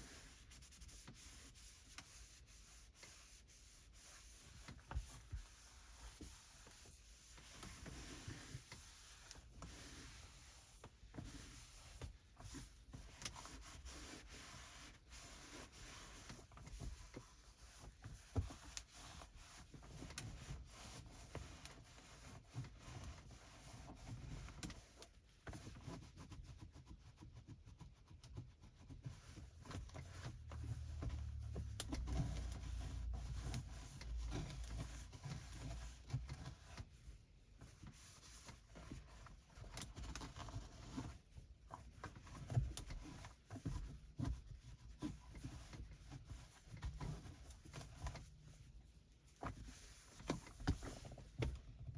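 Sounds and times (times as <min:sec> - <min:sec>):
cloth wiping hard surfaces: 0:00.0 - 0:25.0, 0:29.0 - 0:51.9
small taps and scrapes: 0:00.0 - 0:51.9.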